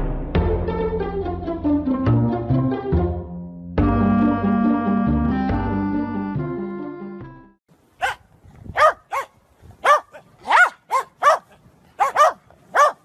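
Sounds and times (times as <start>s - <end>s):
small dog yapping: 8.0s - 8.2s, 8.8s - 13.0s.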